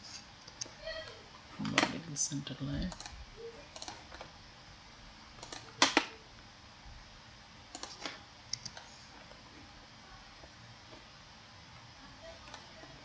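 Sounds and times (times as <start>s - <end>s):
computer mouse clicking: 0.4s - 0.8s, 2.9s - 4.3s, 5.4s - 6.2s, 7.7s - 9.0s.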